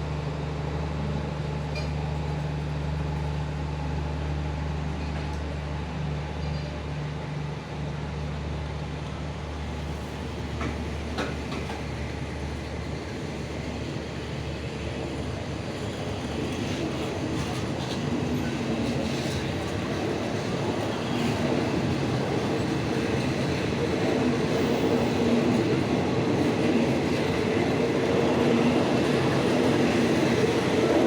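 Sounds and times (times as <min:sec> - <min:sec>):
train engine hum: 0:00.0 - 0:31.0
wheels rattling on rails: 0:09.6 - 0:31.0.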